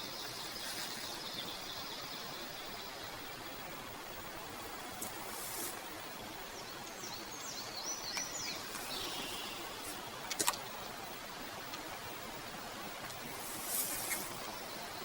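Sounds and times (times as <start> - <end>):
outdoor hiss: 0.0 - 15.0
bird chirping: 6.5 - 10.0.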